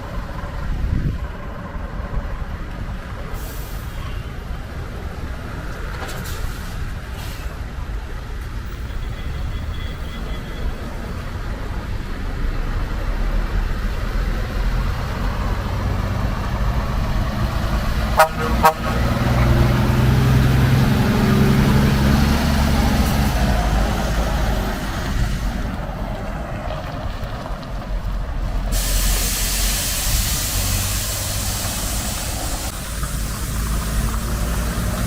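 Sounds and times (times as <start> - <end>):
truck engine running: 12.8 - 35.0
truck horn toots: 18.1 - 19.7.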